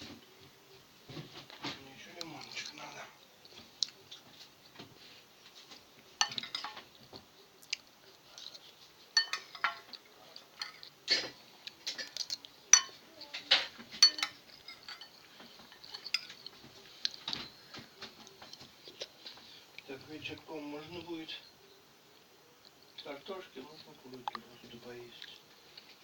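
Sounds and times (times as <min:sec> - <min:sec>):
dishes and cutlery clinking: 0:05.6 - 0:07.2, 0:08.4 - 0:17.6.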